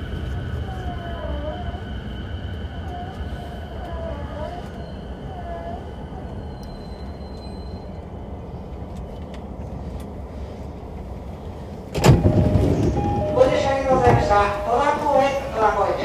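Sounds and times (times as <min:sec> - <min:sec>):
train motor rumble: 0:00.0 - 0:16.0.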